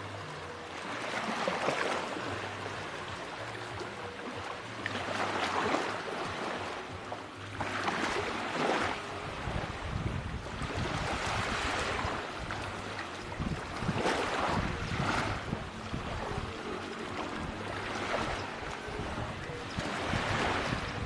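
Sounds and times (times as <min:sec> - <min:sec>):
sea waves breaking on beach: 0:00.0 - 0:21.0.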